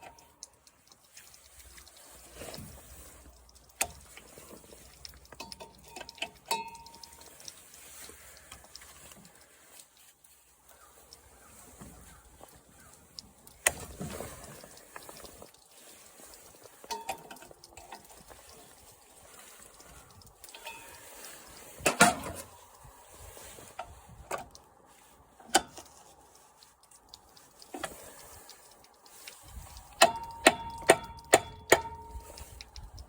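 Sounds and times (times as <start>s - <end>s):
hand tools knocking and clinking: 30.0s - 32.2s.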